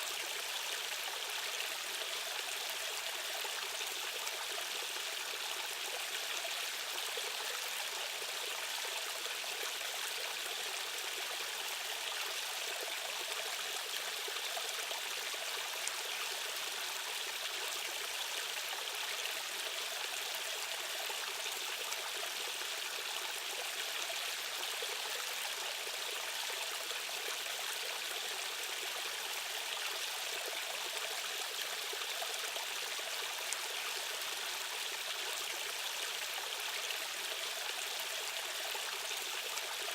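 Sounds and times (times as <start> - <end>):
rushing stream water: 0.0 - 39.9.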